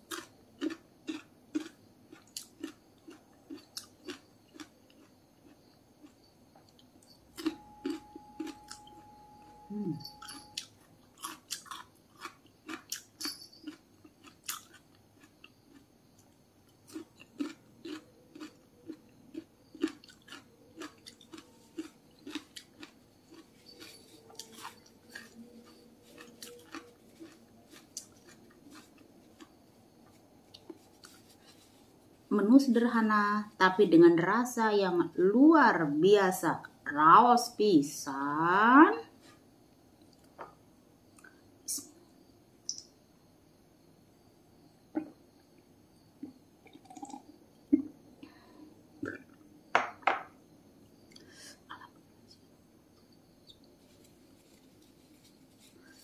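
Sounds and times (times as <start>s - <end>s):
chewing crisp cucumber: 0.0s - 32.0s.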